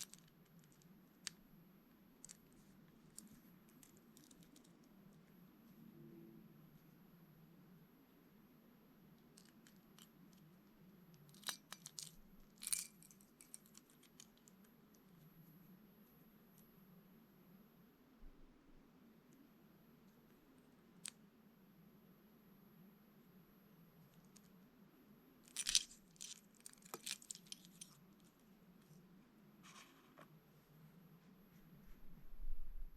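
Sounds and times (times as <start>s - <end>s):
lure rattling: 25.5s - 28.0s
plastic packaging crinkling: 25.5s - 28.0s.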